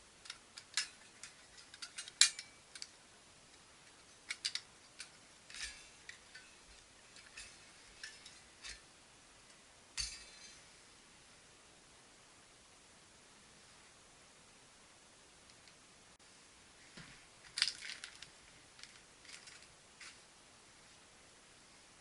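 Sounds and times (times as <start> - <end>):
metal stove parts clinking: 0.2 - 3.0, 3.9 - 8.9, 10.0 - 10.7.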